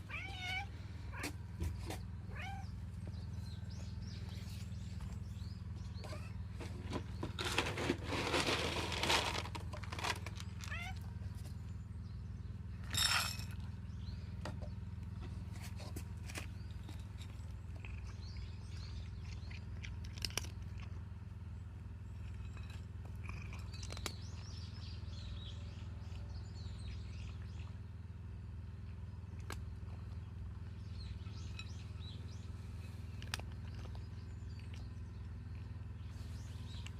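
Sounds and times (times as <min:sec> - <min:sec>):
cats meowing: 0:00.0 - 0:01.4, 0:02.2 - 0:02.8, 0:06.0 - 0:06.4, 0:10.6 - 0:11.1
birds chirping: 0:00.0 - 0:08.3, 0:13.6 - 0:36.9
steady low hum: 0:00.0 - 0:36.9
rustling: 0:06.6 - 0:10.7.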